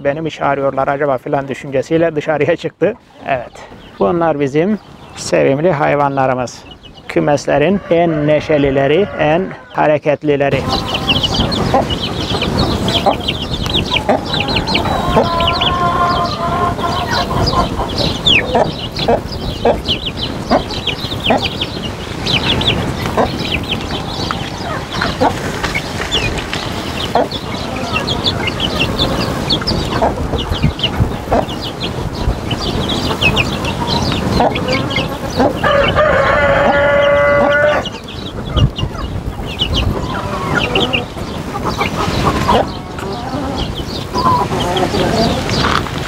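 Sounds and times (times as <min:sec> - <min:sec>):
chicks peeping: 0:00.0 - 0:46.0
hen clucking: 0:00.0 - 0:46.0
rooster crowing: 0:07.6 - 0:09.8, 0:14.0 - 0:17.8, 0:34.6 - 0:38.0.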